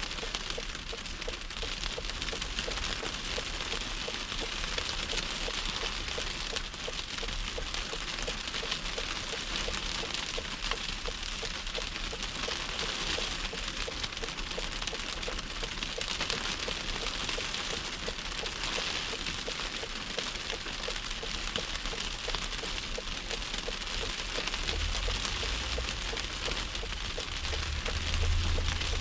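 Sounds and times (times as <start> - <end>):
car driving through snowstorm: 0.0 - 29.0
faint regular ticking: 0.0 - 29.0
low rumble: 24.7 - 29.0.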